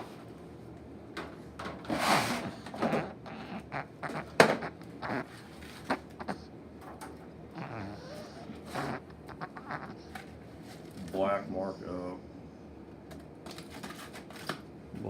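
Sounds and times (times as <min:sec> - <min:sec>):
plastic scraping slide: 0:01.8 - 0:02.9.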